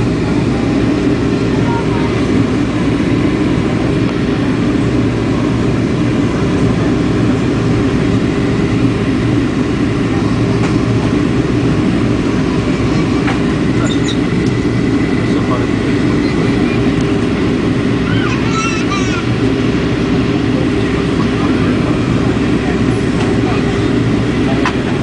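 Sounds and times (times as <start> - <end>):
airliner engines rumbling: 0.0 - 25.0.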